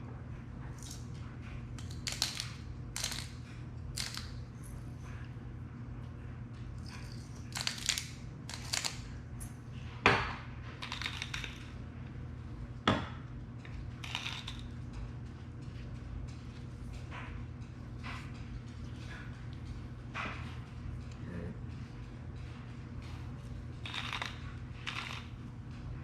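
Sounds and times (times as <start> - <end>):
steady low hum: 0.0 - 26.0
shakers and dishes rattling: 6.8 - 9.6, 10.8 - 11.8, 13.7 - 17.4, 21.7 - 25.9.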